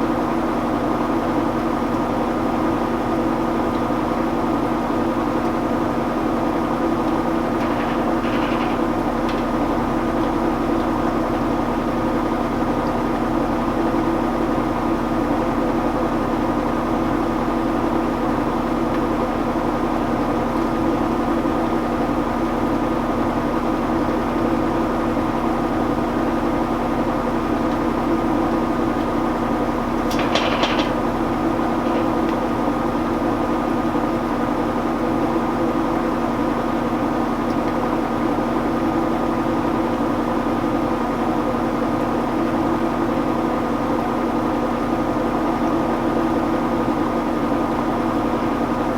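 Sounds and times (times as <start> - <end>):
washing machine spinning: 0.0 - 48.9
brief rattle: 7.5 - 9.6, 30.1 - 32.6.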